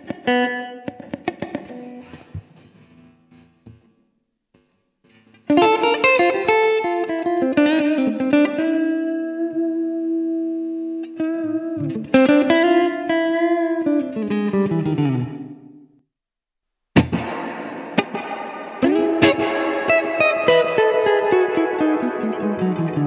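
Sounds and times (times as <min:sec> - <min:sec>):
electric guitar with reverb: 0:00.0 - 0:03.9, 0:05.2 - 0:16.0, 0:17.0 - 0:23.0.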